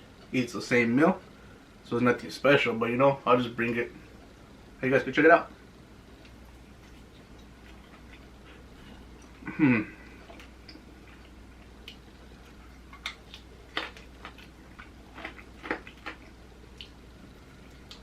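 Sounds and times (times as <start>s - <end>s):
chewing clicks and smacks: 10.3s - 17.0s.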